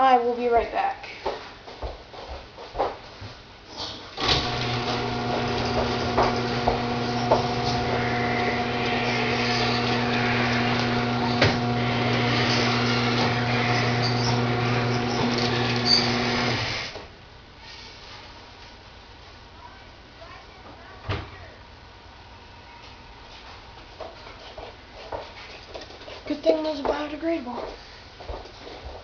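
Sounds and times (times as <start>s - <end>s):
electric motor humming: 4.2s - 17.0s.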